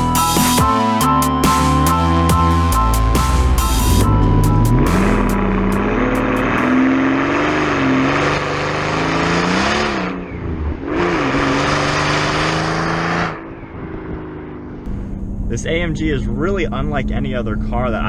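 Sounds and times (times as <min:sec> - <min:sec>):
car engine accelerating hard: 0:01.9 - 0:18.0.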